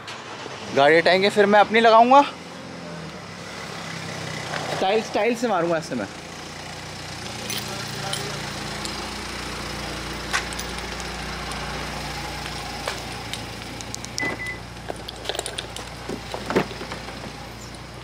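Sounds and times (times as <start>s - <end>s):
car engine idling: 0.0s - 18.0s
sharp clicks: 12.9s - 14.8s
short high beep: 14.2s - 14.6s.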